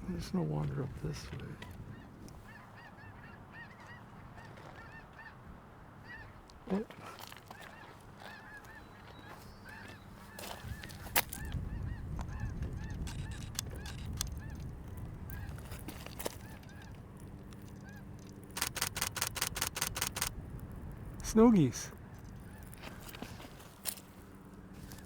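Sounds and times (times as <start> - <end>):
geese honking: 7.5 - 14.7
sharp clicks: 12.8 - 14.7, 16.6 - 20.7.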